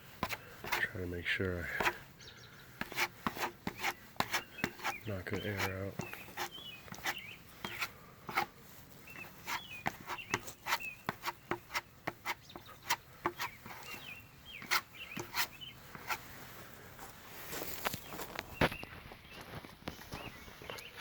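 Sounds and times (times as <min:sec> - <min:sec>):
bird chirps: 0:02.1 - 0:02.8, 0:03.8 - 0:07.9, 0:09.0 - 0:15.9, 0:17.9 - 0:21.0.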